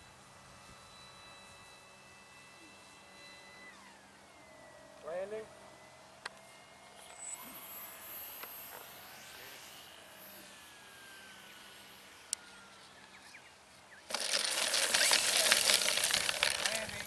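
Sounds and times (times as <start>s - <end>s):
model plane motor whine: 0.0s - 13.2s, 14.1s - 17.0s.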